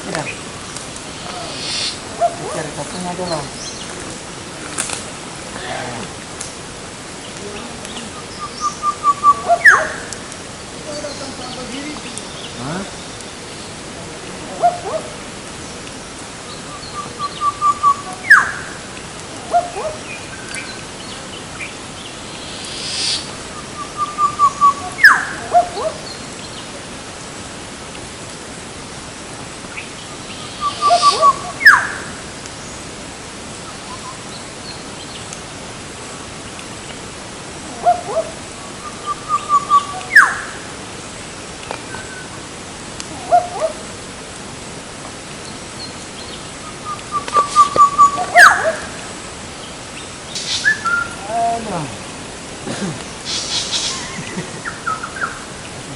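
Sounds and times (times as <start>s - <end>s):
steady outdoor hiss: 0.0s - 55.9s
bird call phrase: 1.2s - 4.0s, 7.4s - 10.2s, 16.5s - 20.8s, 22.6s - 26.2s, 30.4s - 32.2s, 37.7s - 40.6s, 46.6s - 49.1s.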